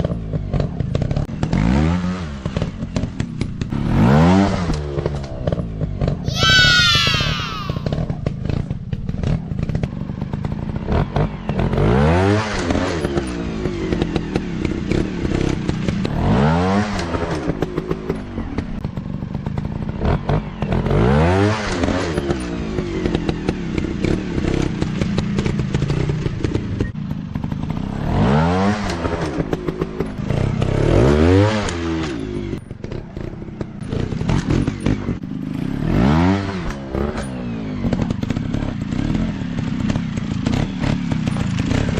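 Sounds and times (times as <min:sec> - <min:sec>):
dirt bike engine revving: 0:32.9 - 0:37.3.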